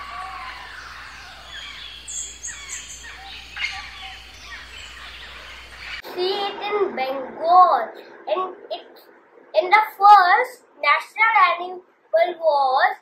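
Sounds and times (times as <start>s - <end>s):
birds chirping and singing: 0.0s - 6.1s
outdoor background noise: 0.0s - 13.0s.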